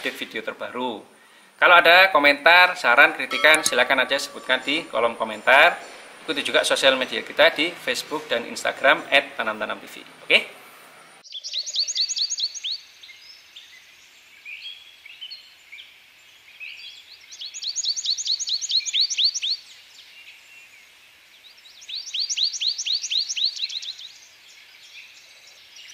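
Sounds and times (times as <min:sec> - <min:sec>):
bird singing high chirps: 0:11.3 - 0:13.8, 0:17.2 - 0:19.6.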